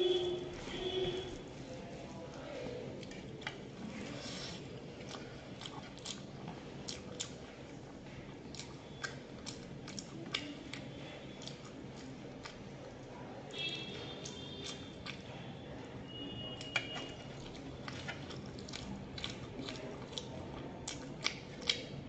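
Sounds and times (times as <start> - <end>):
person chewing and crunching: 2.9 - 13.1, 14.0 - 15.4, 16.6 - 22.0.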